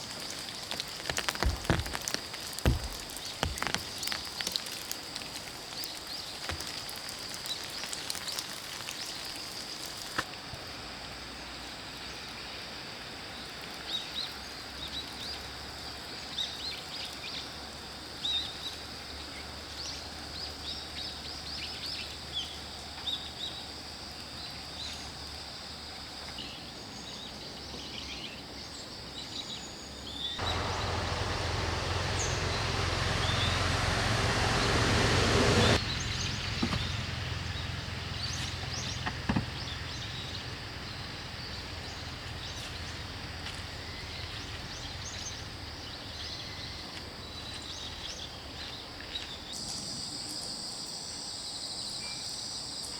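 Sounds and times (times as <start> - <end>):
outdoor hiss: 0.0 - 13.9, 30.4 - 46.3
small birds chirping: 30.2 - 50.5.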